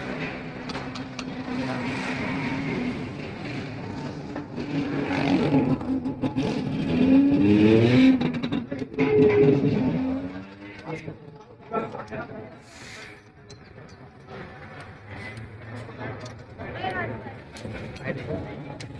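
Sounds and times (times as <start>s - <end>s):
motorcycle engine revving: 0.0s - 11.2s.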